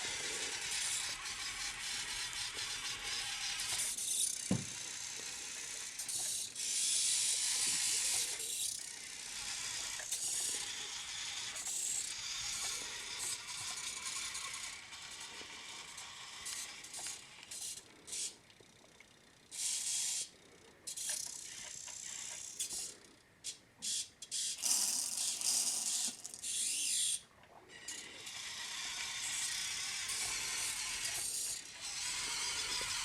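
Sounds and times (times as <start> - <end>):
toy truck motor whirring: 0.0 - 33.0.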